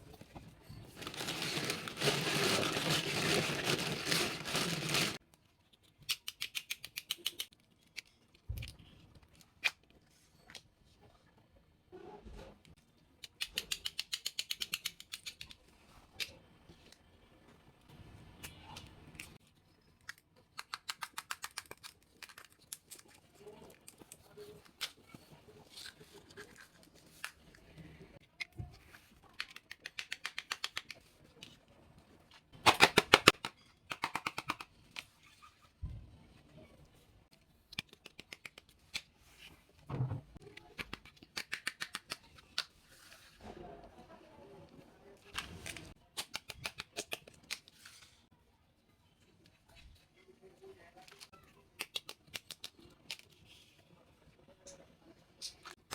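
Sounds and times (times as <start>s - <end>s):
packaging rustling: 0.8s - 5.2s.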